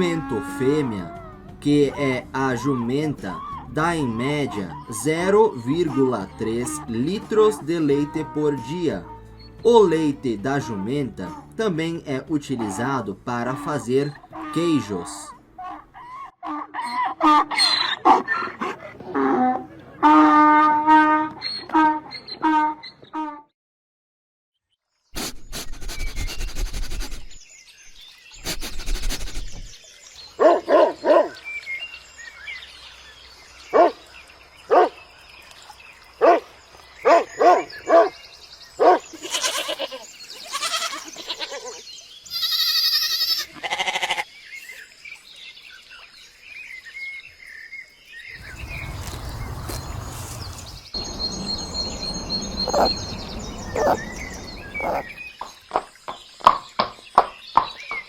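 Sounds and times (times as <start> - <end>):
donkeys braying: 39.2 - 44.2, 48.4 - 55.3
bird chirps: 48.2 - 55.5.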